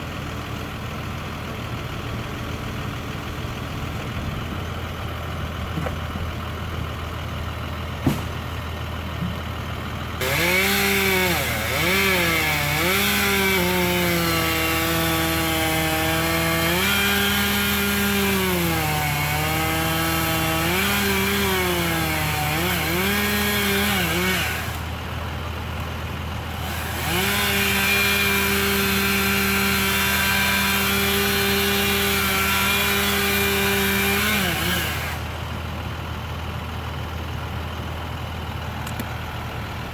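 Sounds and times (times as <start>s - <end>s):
chainsaw cutting wood: 8.0s - 8.6s, 10.2s - 25.1s, 25.8s - 35.5s.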